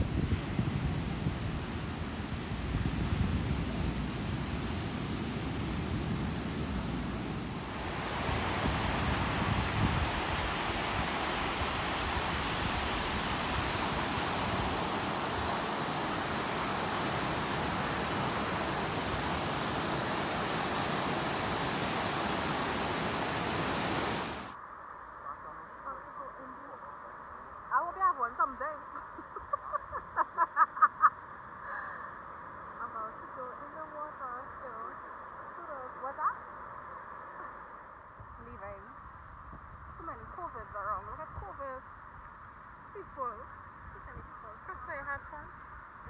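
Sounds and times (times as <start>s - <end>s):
ocean waves breaking on beach: 0.0s - 24.6s
wind rumbling on microphone: 0.0s - 24.6s, 37.2s - 46.0s.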